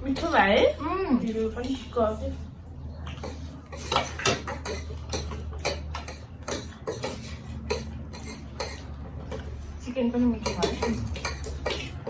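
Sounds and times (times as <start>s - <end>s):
cutlery clinking on a dish: 3.1s - 9.5s, 10.4s - 12.0s.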